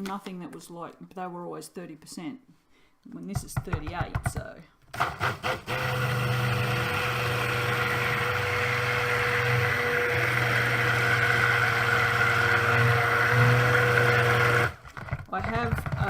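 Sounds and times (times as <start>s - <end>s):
stick blender running: 4.9s - 16.0s.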